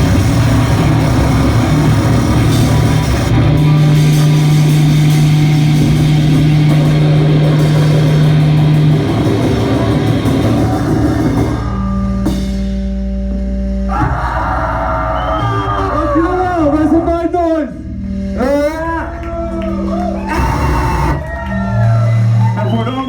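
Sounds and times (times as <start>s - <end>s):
live rock band playing: 0.0s - 11.8s.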